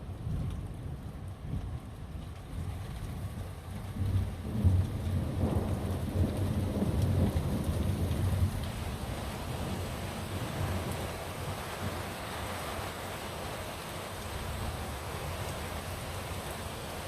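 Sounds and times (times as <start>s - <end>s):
steady rain: 0.0s - 17.0s
thunder rumbling: 3.8s - 12.0s.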